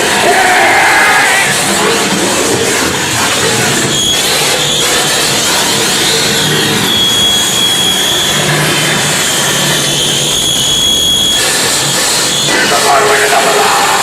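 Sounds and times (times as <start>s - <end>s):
distorted electronic noise: 0.0s - 14.0s
high wavering feedback tone: 2.8s - 14.0s.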